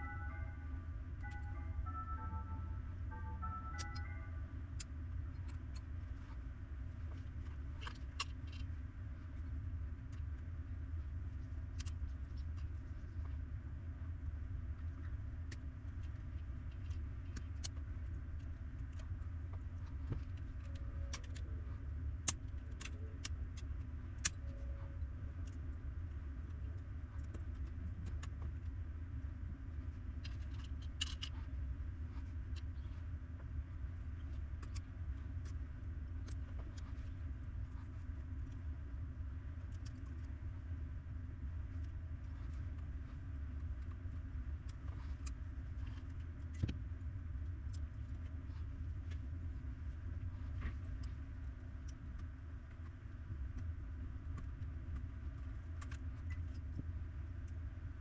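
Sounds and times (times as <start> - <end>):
steady low hum: 0.0 - 58.0
small parts and tools clicking: 7.2 - 8.8, 22.2 - 24.7, 30.2 - 31.5.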